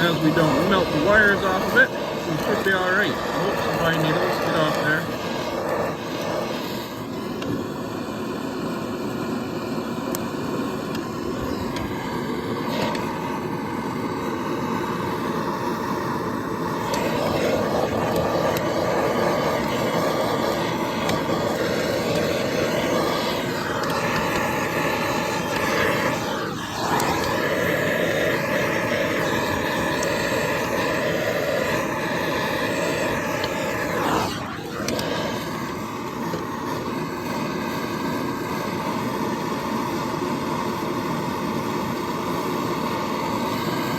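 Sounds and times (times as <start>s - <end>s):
gas torch burning: 0.0s - 43.9s.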